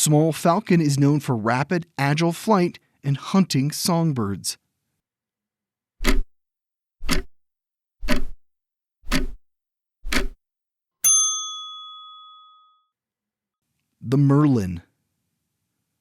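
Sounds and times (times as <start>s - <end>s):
clock ticking: 6.0s - 6.3s, 7.0s - 7.3s, 8.0s - 8.4s, 9.0s - 9.4s, 10.0s - 10.4s
bell ding: 11.0s - 12.9s.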